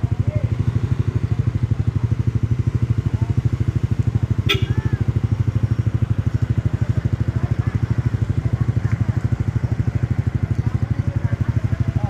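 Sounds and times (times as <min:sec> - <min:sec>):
faint voices: 0:00.0 - 0:12.0
motorcycle engine idling: 0:00.0 - 0:12.0.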